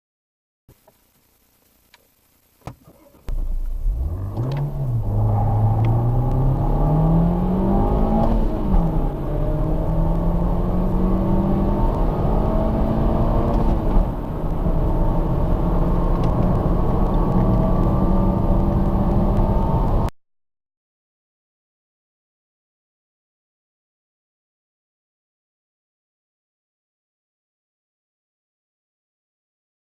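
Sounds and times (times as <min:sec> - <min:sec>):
car engine accelerating: 0:02.9 - 0:20.1.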